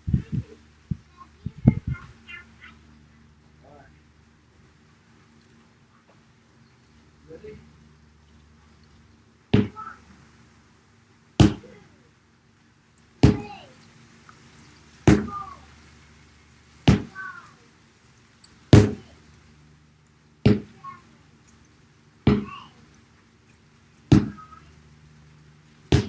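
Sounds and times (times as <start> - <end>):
sledgehammer striking a tyre: 9.6 - 9.8, 11.4 - 11.7, 13.2 - 13.5, 15.1 - 15.4, 16.9 - 17.1, 18.7 - 19.1, 20.5 - 20.8, 22.3 - 22.6, 24.1 - 24.4.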